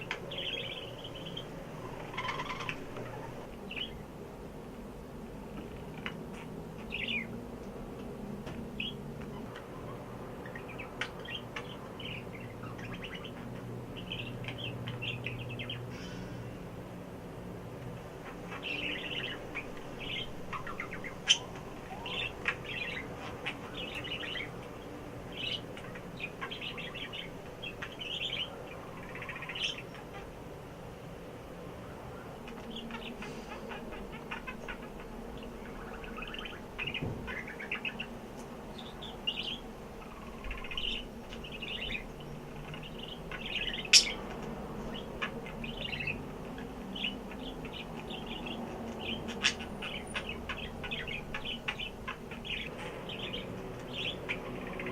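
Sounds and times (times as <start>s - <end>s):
pet bird chirping and squeaking: 1.2s - 3.3s, 42.7s - 44.2s.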